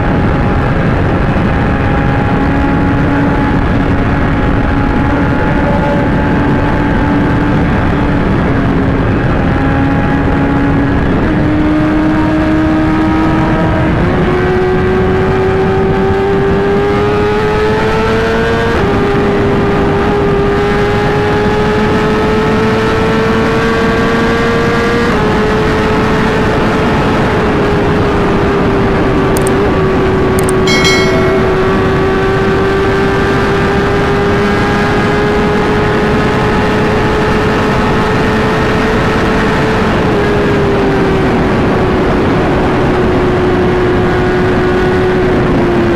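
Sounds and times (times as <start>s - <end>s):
wind and road noise: 0.0s - 45.9s
brief high chirp: 30.7s - 32.3s.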